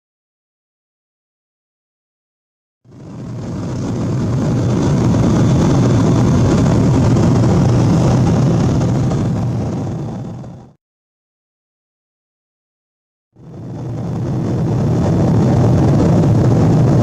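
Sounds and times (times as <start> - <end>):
faint high whine: 2.9 - 10.8, 13.4 - 17.0
jet engines rumbling in cabin: 2.9 - 10.8, 13.4 - 17.0.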